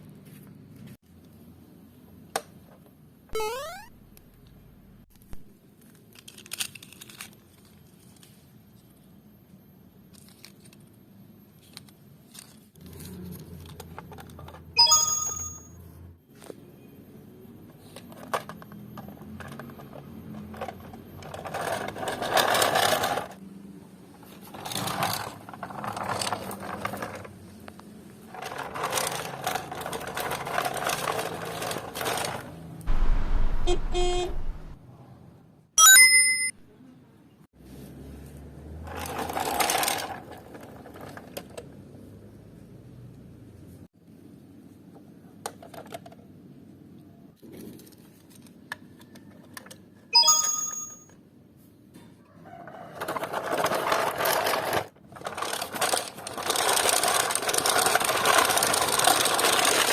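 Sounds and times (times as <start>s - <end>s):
short electronic beep: 3.4s - 3.9s, 32.9s - 34.6s, 35.8s - 36.6s, 50.2s - 51.1s.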